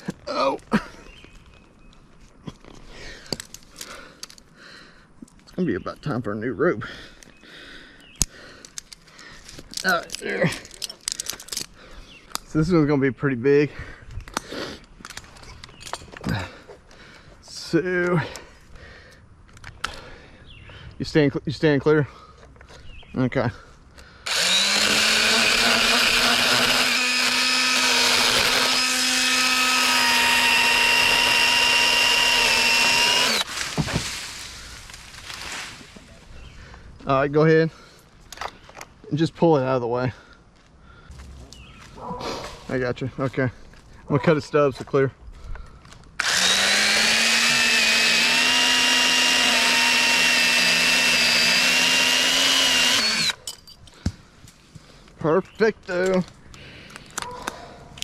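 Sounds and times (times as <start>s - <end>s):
chainsaw cutting wood: 24.2s - 34.5s, 46.2s - 53.4s
electric saw motor whine: 24.3s - 33.5s, 46.2s - 53.4s.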